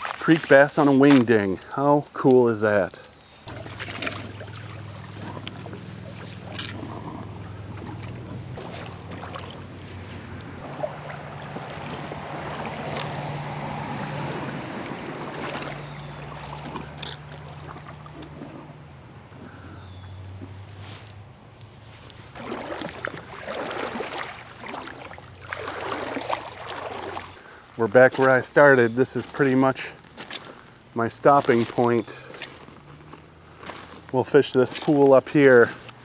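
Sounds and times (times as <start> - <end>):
water sloshing and splashing: 0.0 - 36.0
footsteps on stones: 27.9 - 36.0.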